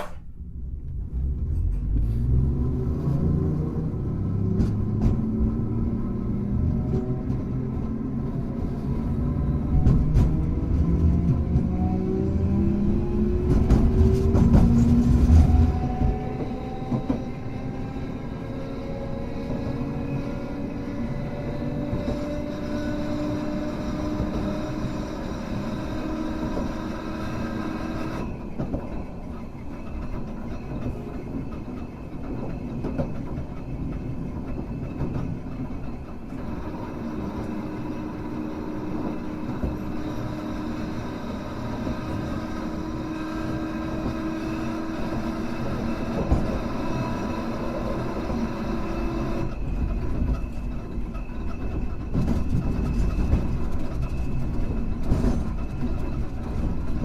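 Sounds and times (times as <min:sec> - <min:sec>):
low rumble: 0:00.0 - 0:07.1
tram running: 0:00.0 - 0:57.0.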